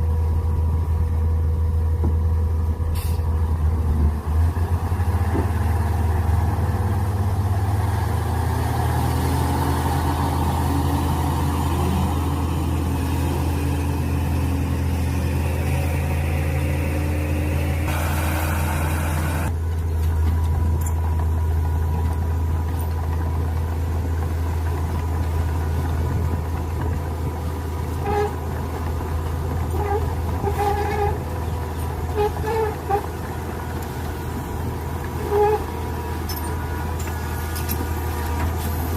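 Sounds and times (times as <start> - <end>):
excavator engine droning: 0.0 - 38.9.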